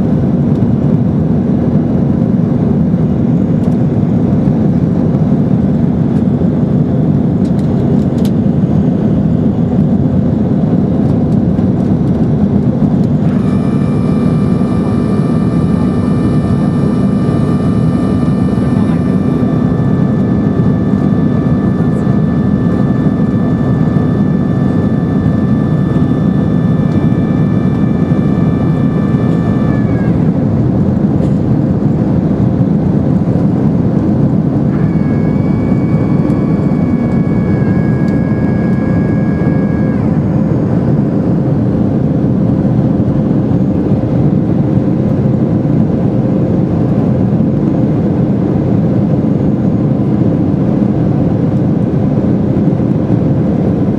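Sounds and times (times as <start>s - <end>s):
jet cabin engine rush: 0.0s - 53.9s
thin high whines: 13.0s - 42.7s.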